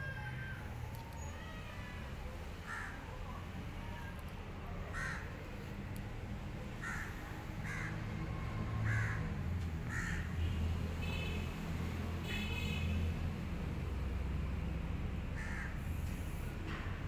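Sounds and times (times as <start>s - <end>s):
bird cawing: 2.6s - 3.0s, 4.9s - 5.4s, 6.8s - 8.0s, 8.8s - 10.4s, 15.4s - 15.8s.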